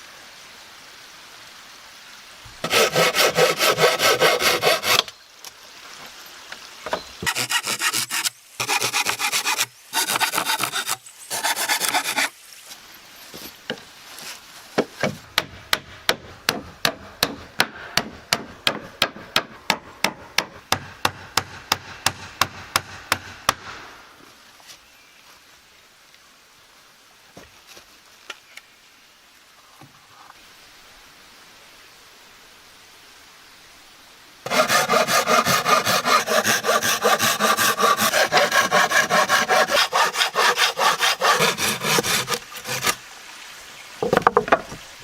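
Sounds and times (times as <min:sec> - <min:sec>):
saw cutting wood: 0:02.6 - 0:05.1, 0:07.2 - 0:12.4, 0:34.4 - 0:43.0.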